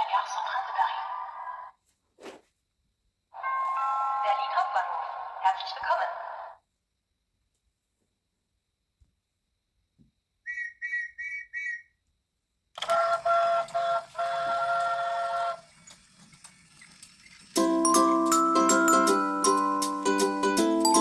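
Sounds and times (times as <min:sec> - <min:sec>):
train whistle tone: 0:03.4 - 0:04.4, 0:10.5 - 0:11.9, 0:12.8 - 0:15.7.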